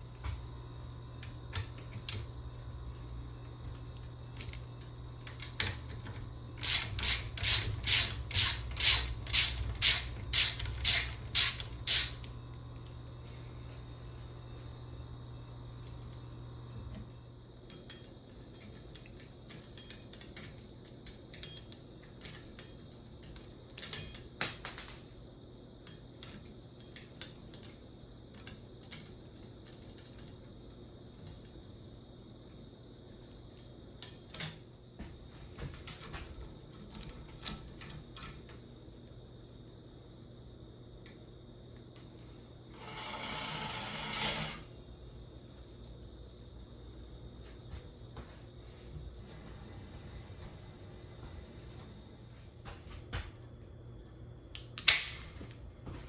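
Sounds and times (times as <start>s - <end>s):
metal bicycle parts clinking: 17.6s - 24.9s.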